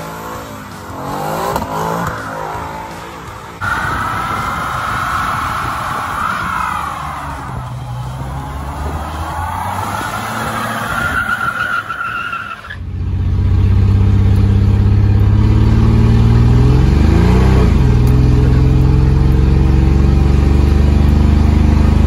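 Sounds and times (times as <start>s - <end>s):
vehicle engine at high revs: 0.0s - 11.6s, 12.7s - 22.0s
high tire squeal screech: 3.6s - 12.8s.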